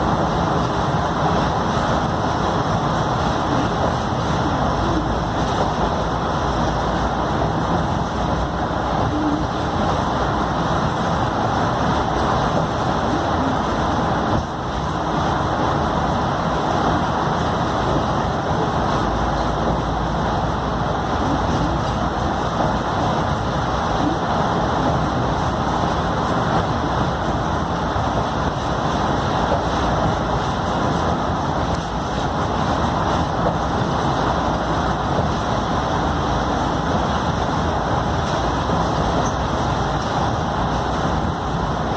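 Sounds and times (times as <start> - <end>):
bus diesel engine running: 0.0 - 41.9.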